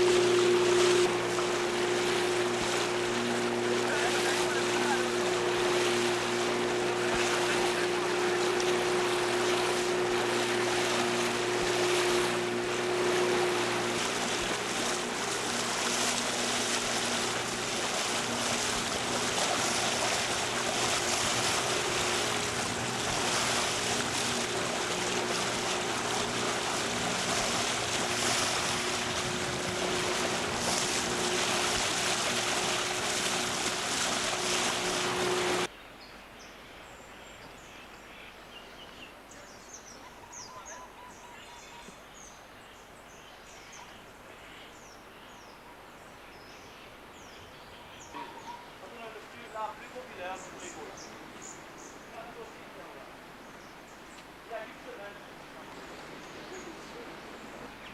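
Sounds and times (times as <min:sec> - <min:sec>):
boat engine humming: 0:00.0 - 0:35.7, 0:45.8 - 0:57.9
wind and water rushing: 0:00.0 - 0:37.8, 0:42.0 - 0:57.9
small birds chirping: 0:44.8 - 0:57.9.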